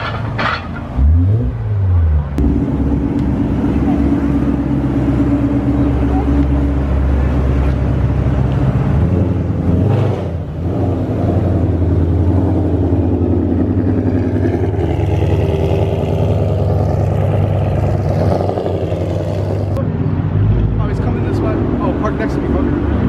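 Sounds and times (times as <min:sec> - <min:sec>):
car engine running: 0:02.3 - 0:19.8.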